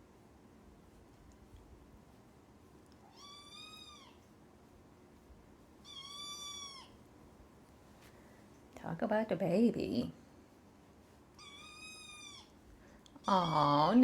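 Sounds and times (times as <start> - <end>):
kitten meowing: 3.1 - 4.2, 5.8 - 7.0, 11.4 - 12.5.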